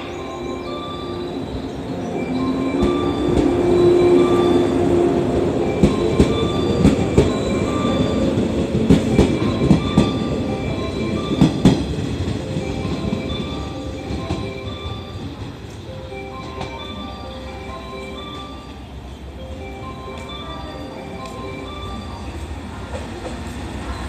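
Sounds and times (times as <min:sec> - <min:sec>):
electric train motors humming: 0:00.0 - 0:24.0
wheels clacking over rail joints: 0:02.1 - 0:17.1.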